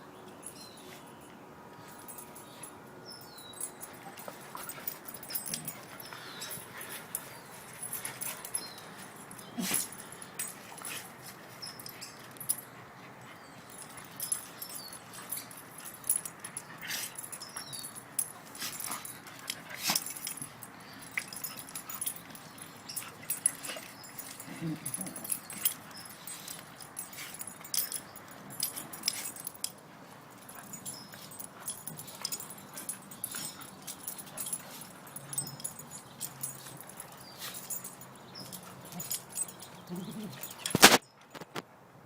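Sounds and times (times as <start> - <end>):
dog sneezes and snorts: 9.6 - 9.9.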